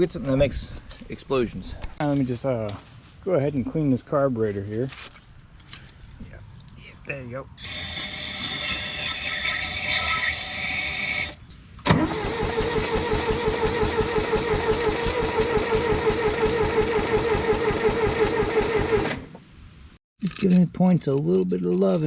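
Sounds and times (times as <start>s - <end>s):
engine cranking on starter: 11.2s - 19.3s.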